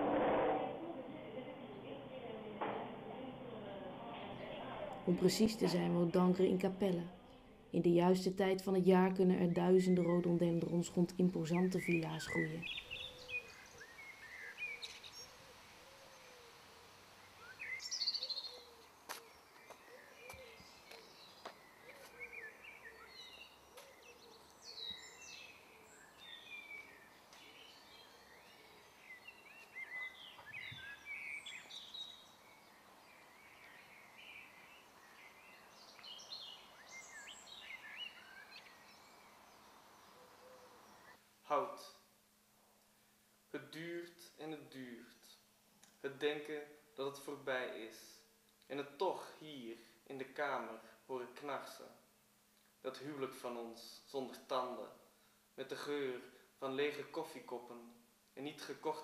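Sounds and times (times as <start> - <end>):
faint background noise: 0.0 - 59.0
birds chirping and whistling: 9.4 - 16.5, 17.2 - 41.2
faint steady hiss: 10.4 - 59.0.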